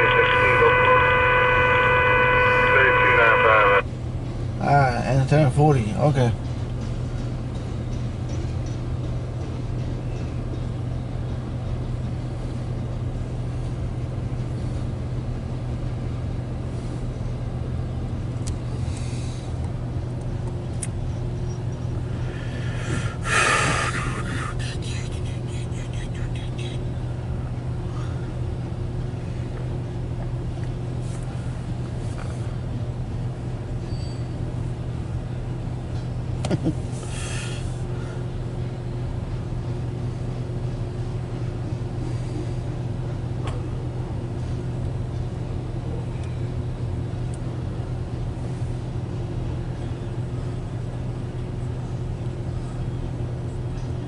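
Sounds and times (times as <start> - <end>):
train rumbling past: 0.0 - 24.7.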